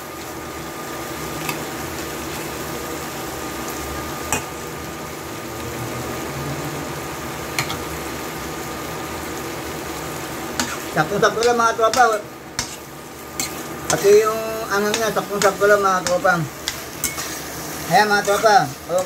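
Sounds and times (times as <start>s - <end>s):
meat sizzling in a pan: 0.0s - 19.0s
metal spatula stirring: 10.6s - 19.0s
spatula clicking against pan: 14.9s - 17.2s.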